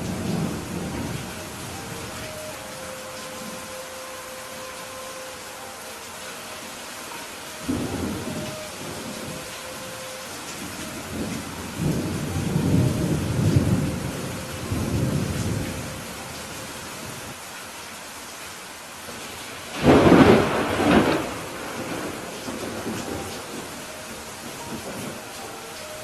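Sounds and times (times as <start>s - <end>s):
thunder rumbling: 0.0s - 3.8s, 7.1s - 16.3s, 19.7s - 25.4s
steady rain: 0.0s - 26.0s
sharp thunderclap: 19.8s - 23.1s.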